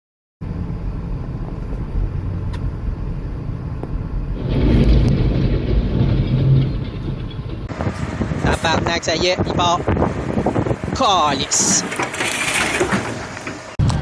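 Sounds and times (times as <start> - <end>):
truck engine running: 0.4 - 8.9.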